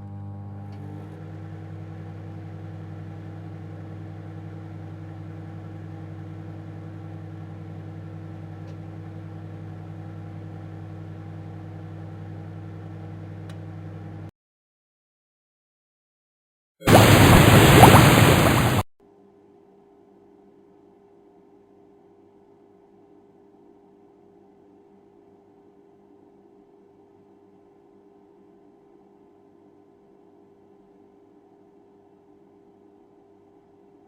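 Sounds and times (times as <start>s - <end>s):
microwave oven humming: 0.0s - 14.3s.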